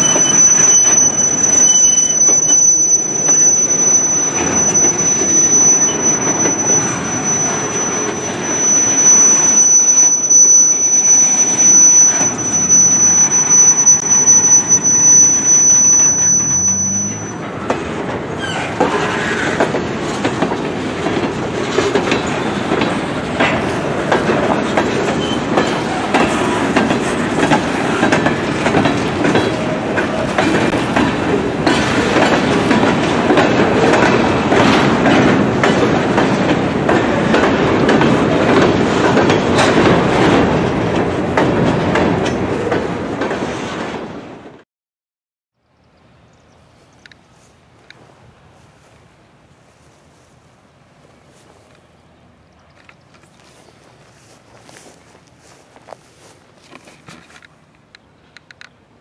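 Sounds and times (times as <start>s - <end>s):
wheels clicking over rails: 0.0s - 44.0s
train rumbling past: 0.0s - 44.6s, 46.8s - 58.4s.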